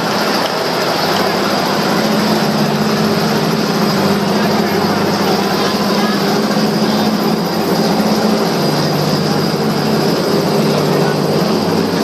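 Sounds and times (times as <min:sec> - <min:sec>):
helicopter rotor and engine: 0:00.0 - 0:12.0.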